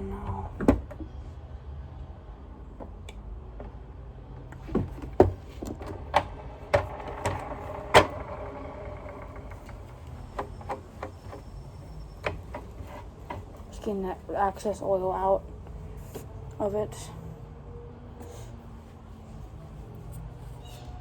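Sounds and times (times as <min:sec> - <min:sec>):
low steady hum: 0:00.0 - 0:21.0
clicks and knocks of plastic parts: 0:04.4 - 0:13.8.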